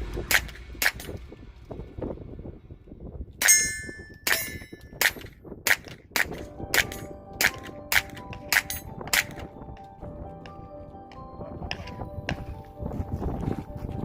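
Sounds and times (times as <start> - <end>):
metal targets clanging: 3.4 - 9.6
gunshots: 4.3 - 9.4.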